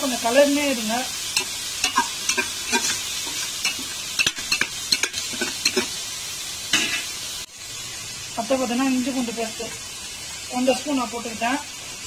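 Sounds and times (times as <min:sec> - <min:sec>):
vegetables sizzling in hot fat: 0:00.0 - 0:12.0
spatula scraping a pot: 0:01.4 - 0:06.0, 0:06.7 - 0:07.2.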